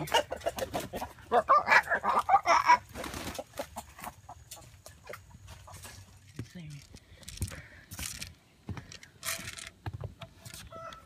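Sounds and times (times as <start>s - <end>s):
chicken clucking and squawking: 0.0s - 6.1s, 10.6s - 11.0s.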